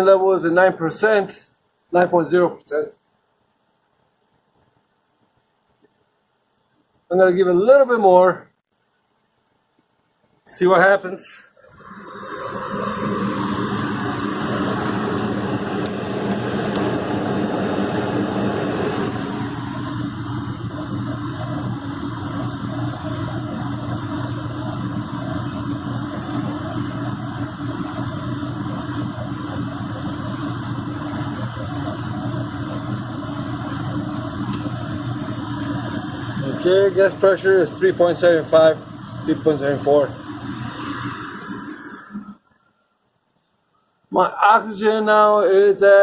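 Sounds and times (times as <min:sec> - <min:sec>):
furnace motors humming: 0:11.6 - 0:42.5.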